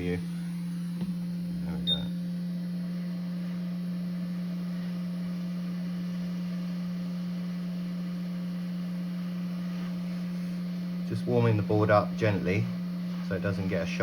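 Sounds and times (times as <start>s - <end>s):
hot air station humming: 0.0s - 14.0s.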